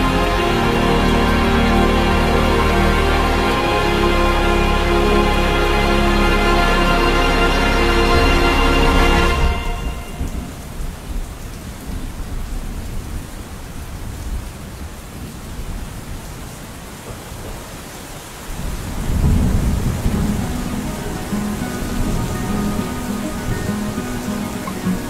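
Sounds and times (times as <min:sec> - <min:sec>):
steady rain: 0:00.0 - 0:25.0
low rolling thunder: 0:09.4 - 0:14.6, 0:18.5 - 0:23.7.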